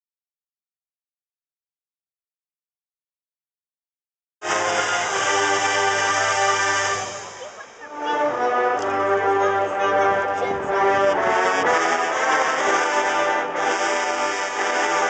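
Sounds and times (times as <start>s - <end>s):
marching band brass chords: 4.4s - 15.0s.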